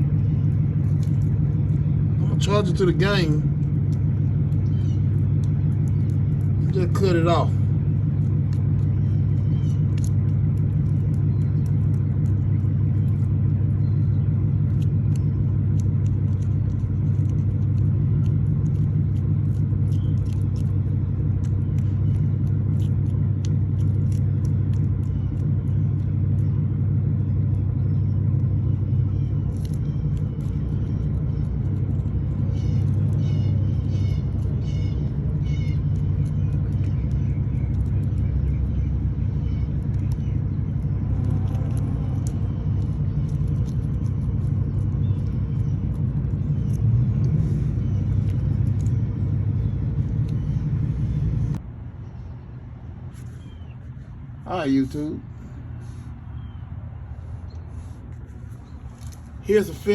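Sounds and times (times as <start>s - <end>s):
low mechanical rumble: 0.0s - 59.9s.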